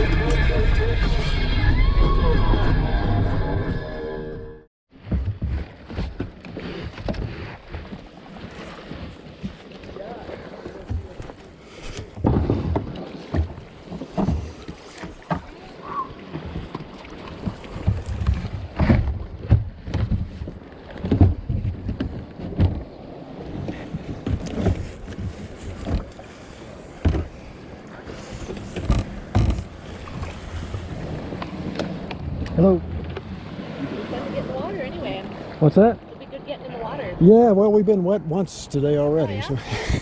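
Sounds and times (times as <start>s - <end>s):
water lapping around kayak: 4.9s - 40.0s
low bumps: 28.3s - 35.4s
wind on microphone: 39.4s - 40.0s.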